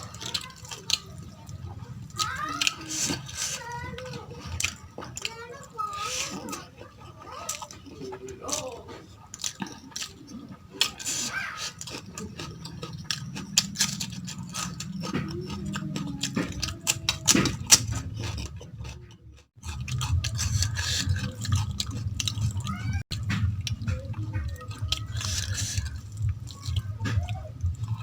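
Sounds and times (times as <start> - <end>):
chewing and mouth sounds: 0.0 - 28.0
steady low rumble: 17.0 - 28.0.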